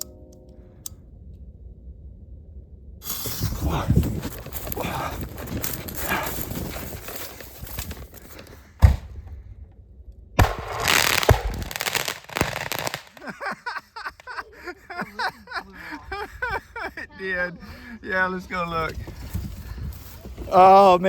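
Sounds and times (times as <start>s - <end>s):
fireworks hissing and crackling: 3.0s - 8.6s, 10.4s - 14.7s
fireworks bangs: 10.4s - 14.4s.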